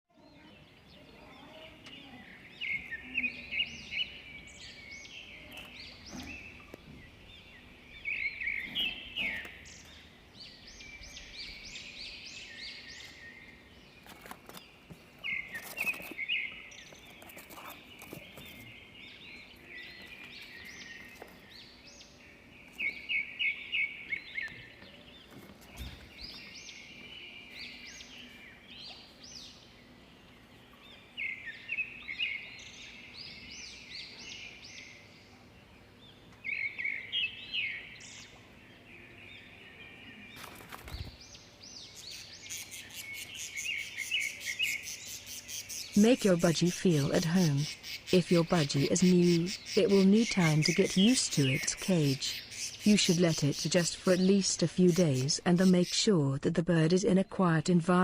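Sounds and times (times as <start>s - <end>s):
budgerigar chicks chirping: 2.7s - 13.3s, 40.9s - 57.9s.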